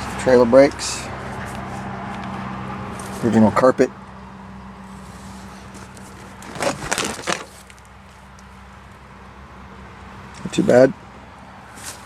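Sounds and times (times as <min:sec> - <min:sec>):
crackling handling noise: 0:05.0 - 0:09.0.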